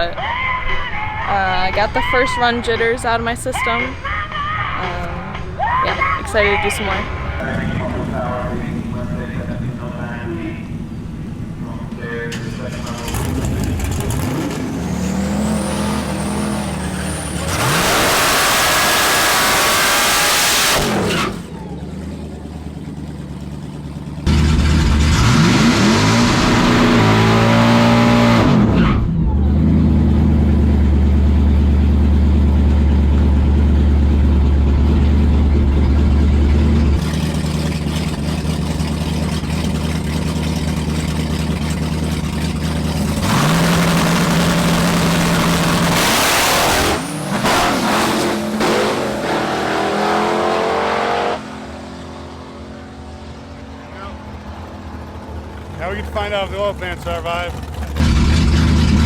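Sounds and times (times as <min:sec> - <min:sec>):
drag car engine at full throttle: 0:00.0 - 0:59.0
rising whine: 0:04.4 - 0:23.5.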